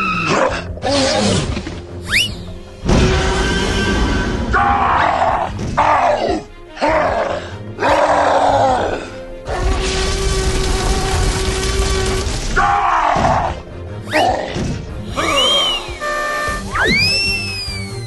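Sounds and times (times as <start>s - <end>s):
background music: 0.0s - 18.0s
rising whistle-like glide: 15.2s - 18.0s.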